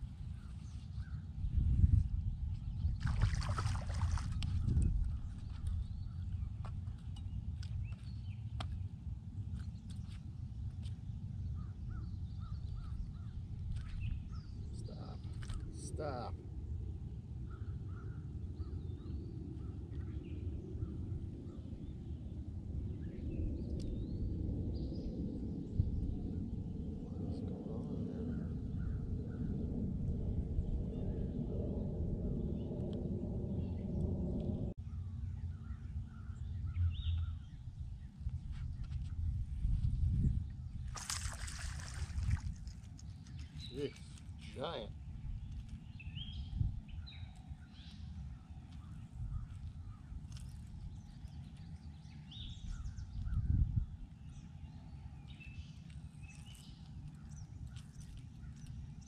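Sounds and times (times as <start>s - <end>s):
steady low rumble: 0.0s - 59.0s
birds calling and chirping: 9.6s - 16.3s, 34.8s - 39.1s, 40.3s - 59.0s.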